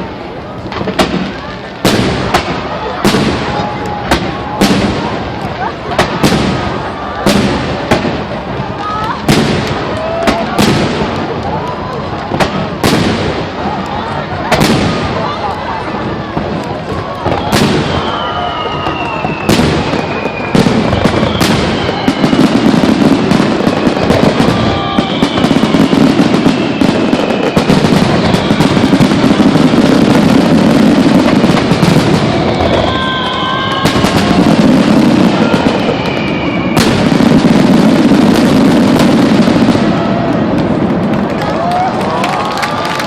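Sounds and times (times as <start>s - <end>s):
fireworks crackling: 0.0s - 43.0s
loud firework bangs: 0.0s - 43.0s
whistling firework shells: 16.9s - 40.7s.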